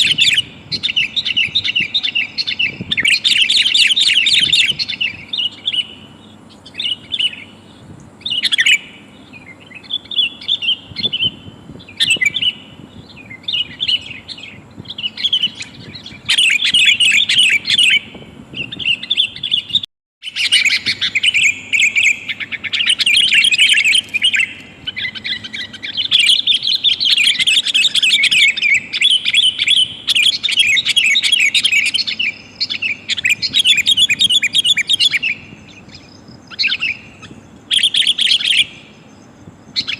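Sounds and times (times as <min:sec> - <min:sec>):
bulbul chattering calls: 0:00.0 - 0:39.9.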